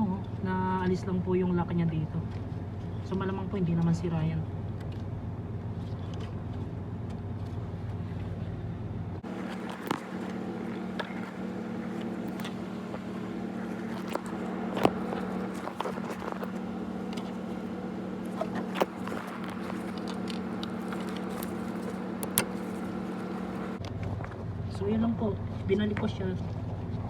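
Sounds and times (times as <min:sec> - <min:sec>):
low machine hum: 0:00.0 - 0:27.0
clicks and knocks of parts: 0:09.2 - 0:24.0.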